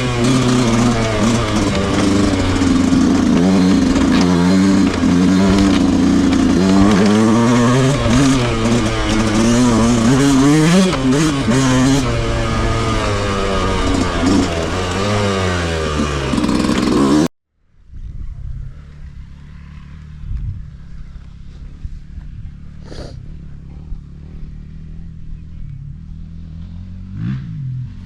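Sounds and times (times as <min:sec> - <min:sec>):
quieter steady engine: 0:00.0 - 0:17.0, 0:17.6 - 0:28.0
dirt bike engine revving: 0:00.0 - 0:17.3.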